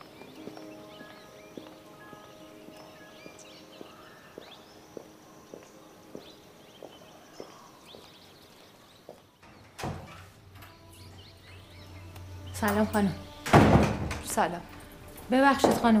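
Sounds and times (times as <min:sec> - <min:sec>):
faint bird chirps: 0:00.0 - 0:09.4
footsteps on stone paving: 0:00.0 - 0:09.4, 0:15.2 - 0:16.0.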